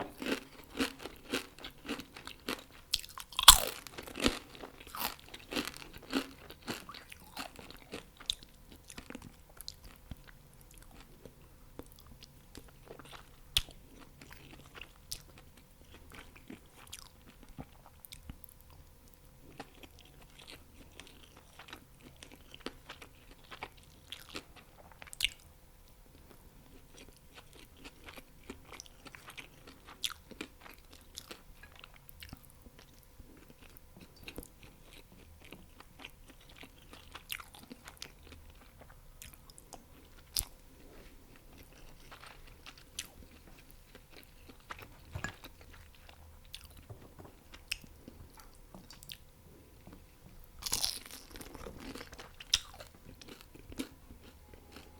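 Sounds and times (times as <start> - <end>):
close chewing of crisp food: 0.0 - 54.9
crunchy bite: 0.2 - 7.6, 50.6 - 53.9.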